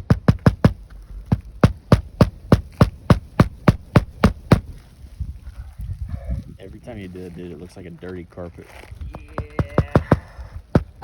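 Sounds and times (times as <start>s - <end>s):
nails hammered into roof shingles: 0.0s - 4.8s, 9.4s - 11.0s.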